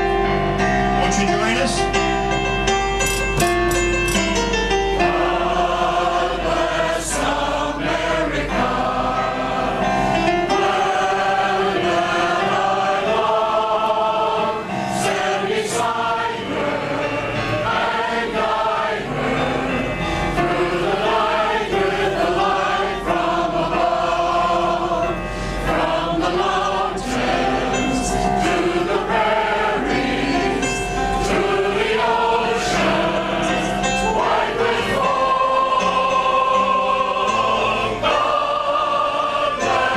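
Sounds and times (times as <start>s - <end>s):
male chorus singing: 5.0s - 39.9s.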